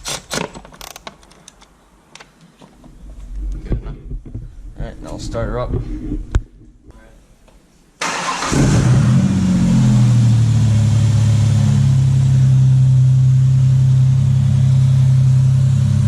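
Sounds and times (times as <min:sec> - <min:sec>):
engine cranking and idling: 0:08.0 - 0:11.0.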